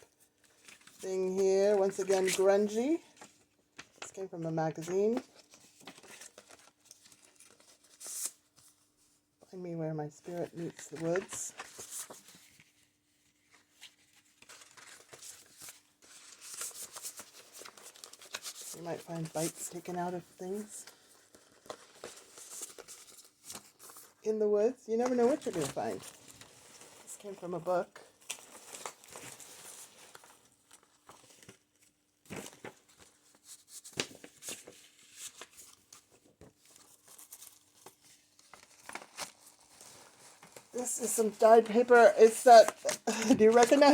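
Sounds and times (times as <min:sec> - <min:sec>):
paper pages rustling: 0:00.1 - 0:09.2, 0:10.2 - 0:24.2, 0:25.0 - 0:43.9
page flaps: 0:38.5 - 0:43.9.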